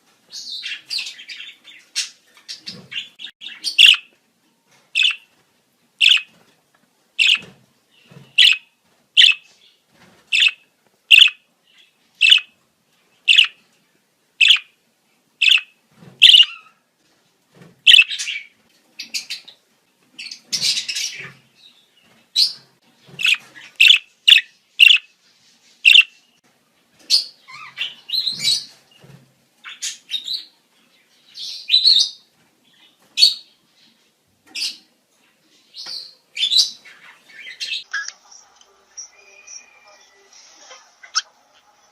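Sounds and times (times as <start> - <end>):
budgerigars chirping: 0.4 - 4.1, 5.0 - 5.3, 6.0 - 6.3, 7.2 - 7.5, 8.3 - 9.5, 10.3 - 11.4, 12.2 - 12.5, 13.3 - 13.6, 14.4 - 14.7, 15.4 - 16.7, 17.9 - 18.5, 23.2 - 25.1, 25.9 - 26.1.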